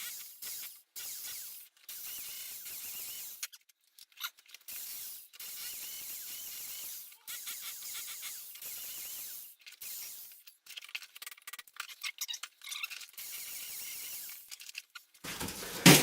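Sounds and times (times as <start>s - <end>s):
impact drill hammering into brick: 15.3s - 16.0s.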